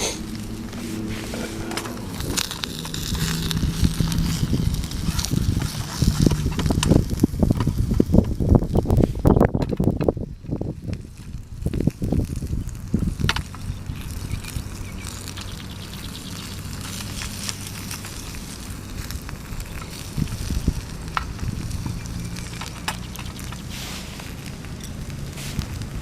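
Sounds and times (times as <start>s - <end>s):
wood fire crackling: 0.0s - 26.0s
food sizzling in a pan: 11.1s - 26.0s.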